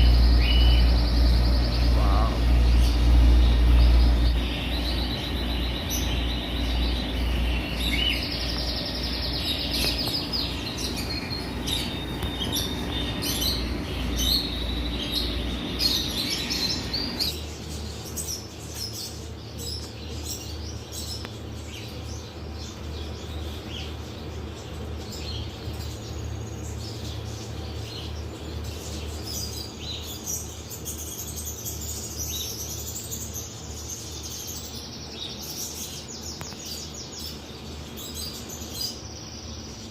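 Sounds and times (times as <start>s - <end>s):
small birds chirping and twittering: 0.0s - 39.9s
steady low hum: 0.0s - 39.9s.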